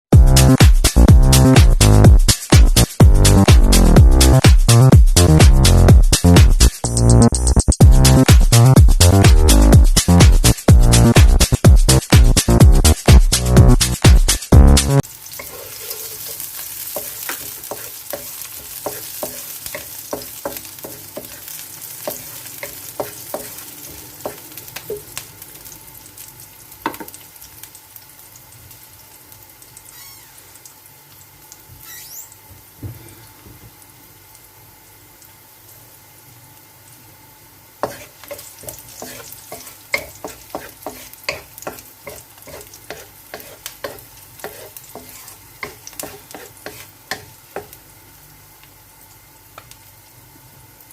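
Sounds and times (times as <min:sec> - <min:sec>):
food sizzling in oil: 0:00.3 - 0:50.9
utensil clicking and scraping pan: 0:15.4 - 0:21.5, 0:22.1 - 0:23.6, 0:37.8 - 0:47.8.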